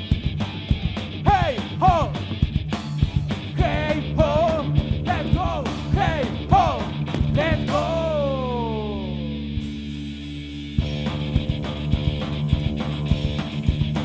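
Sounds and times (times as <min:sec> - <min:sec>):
drums pounding: 0:00.0 - 0:08.1, 0:09.7 - 0:14.0
punk rock band playing: 0:00.0 - 0:14.0
guitar riff of bending notes: 0:03.6 - 0:14.0.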